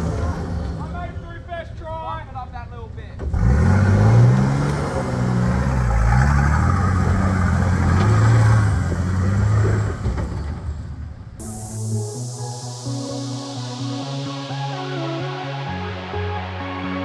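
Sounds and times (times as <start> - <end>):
engine revving under load: 3.2 - 11.4
music: 11.4 - 17.0.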